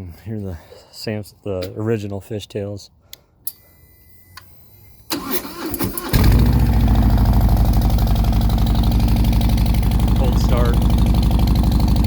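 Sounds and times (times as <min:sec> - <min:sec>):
car starter cranking: 0:05.1 - 0:06.8
car engine idling: 0:05.2 - 0:12.0.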